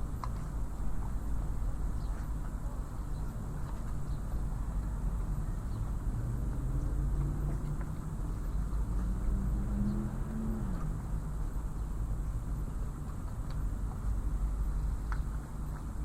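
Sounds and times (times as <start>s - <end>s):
distant engines and traffic rumble: 0.0s - 16.0s
engine hum: 0.0s - 16.0s.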